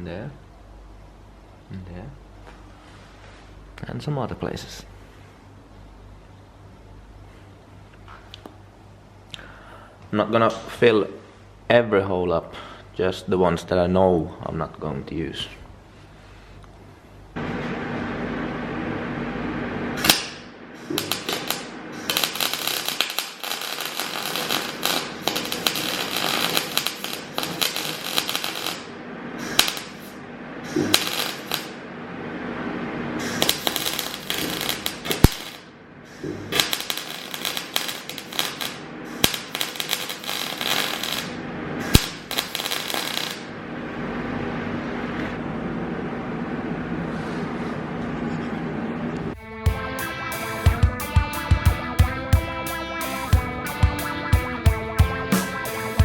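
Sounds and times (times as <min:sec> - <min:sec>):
welding arc crackling: 0:20.0 - 0:31.8, 0:33.2 - 0:43.6, 0:49.4 - 0:56.0.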